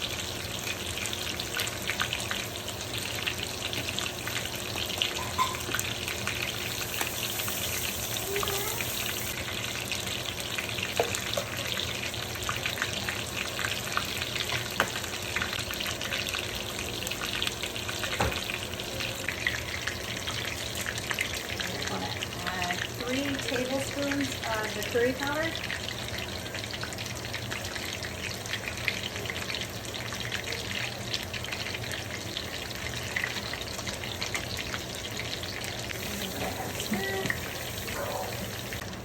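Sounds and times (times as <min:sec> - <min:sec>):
food sizzling in hot oil: 0:00.0 - 0:39.0.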